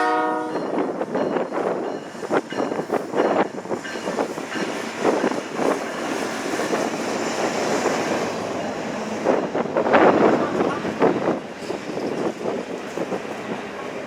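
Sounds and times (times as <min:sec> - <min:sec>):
train rumbling past: 0:00.0 - 0:14.0
wind buffeting microphone: 0:00.3 - 0:14.0.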